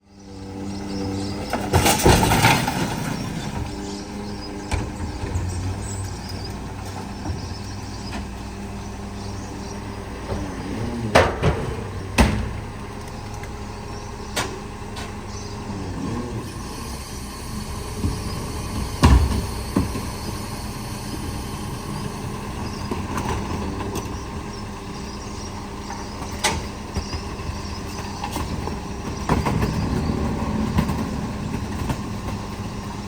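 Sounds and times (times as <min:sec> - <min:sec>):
garbage truck engine running: 0:00.0 - 0:33.0
loud clattering: 0:01.5 - 0:08.4
sharp bangs: 0:10.3 - 0:12.9.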